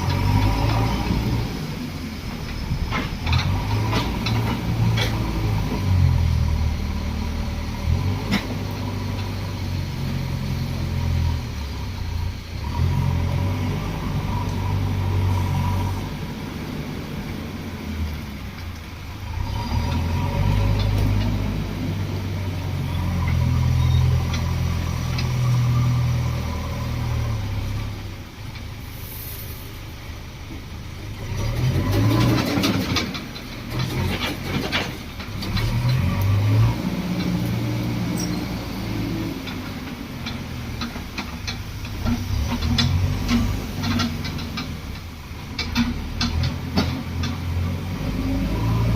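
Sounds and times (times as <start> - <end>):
diesel engine working: 0.0 - 48.9
loud clanking and rattling: 31.3 - 36.2, 37.1 - 47.7.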